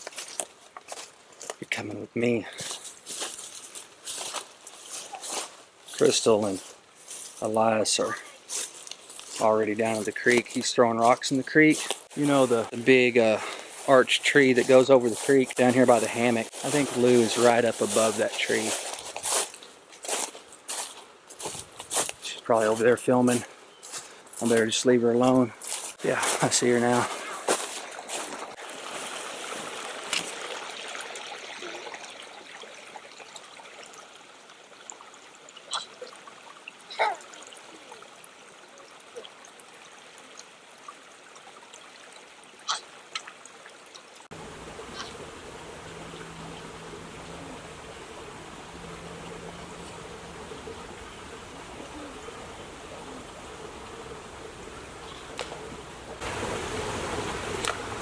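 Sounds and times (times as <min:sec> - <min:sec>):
water trickling over rocks: 0:00.0 - 0:58.0
faint low hum: 0:44.4 - 0:56.2.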